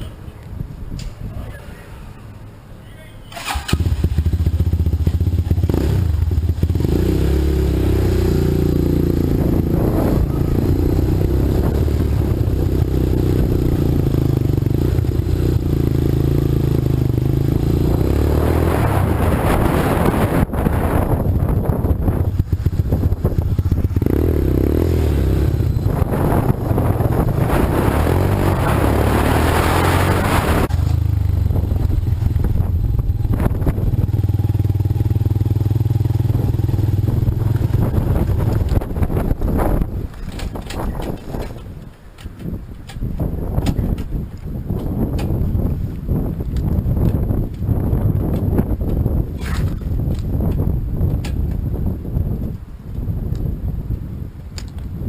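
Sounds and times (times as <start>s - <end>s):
small engine idling and revving: 3.4s - 20.4s, 21.9s - 39.3s.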